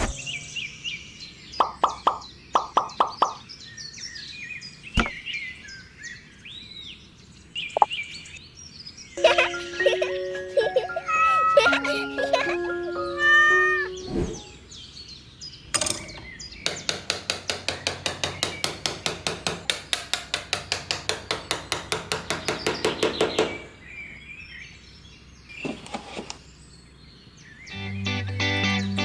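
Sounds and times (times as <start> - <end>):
background music: 9.2 - 14.5, 27.7 - 29.0.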